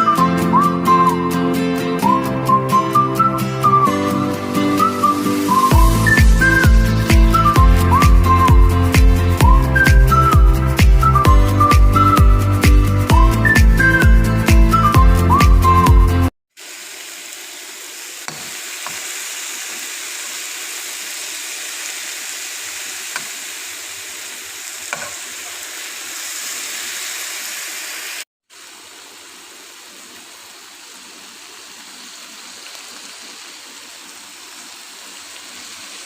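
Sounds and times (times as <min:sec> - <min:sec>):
food sizzling in a pan: 0:04.9 - 0:07.5, 0:16.6 - 0:36.0.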